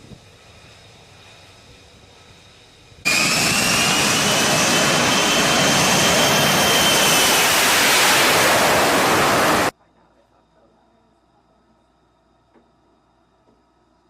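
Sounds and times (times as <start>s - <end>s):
jet engine roaring: 0.3s - 9.7s.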